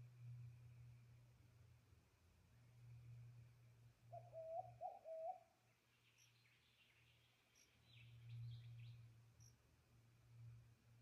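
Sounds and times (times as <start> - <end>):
low steady hum: 0.0 - 4.6
small birds twittering: 4.2 - 9.6.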